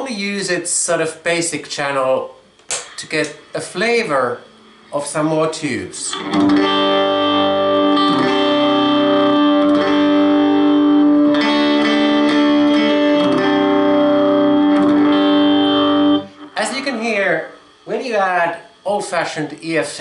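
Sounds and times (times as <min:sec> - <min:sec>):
electric guitar chords: 0:06.1 - 0:17.8.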